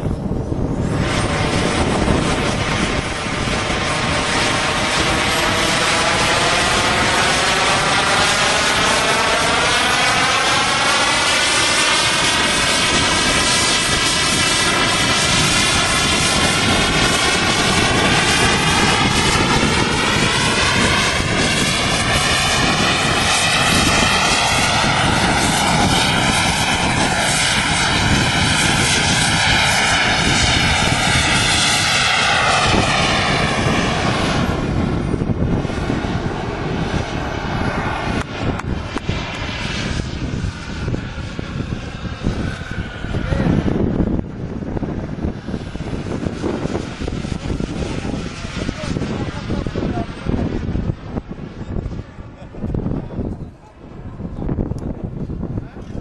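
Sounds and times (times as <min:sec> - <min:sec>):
model jet engine roaring: 0:00.0 - 0:56.0.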